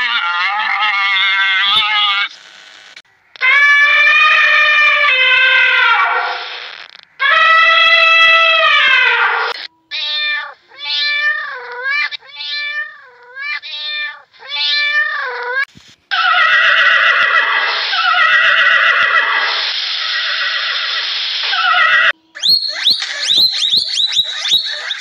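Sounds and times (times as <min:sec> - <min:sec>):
cats yowling: 0:00.0 - 0:02.3, 0:03.4 - 0:06.6, 0:07.2 - 0:25.0
horse squealing and neighing: 0:00.0 - 0:02.3, 0:16.1 - 0:22.2.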